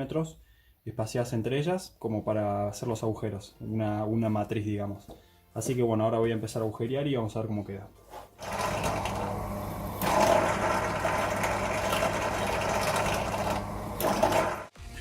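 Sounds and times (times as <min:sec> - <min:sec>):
electric drill boring sheet steel: 0:08.4 - 0:14.7.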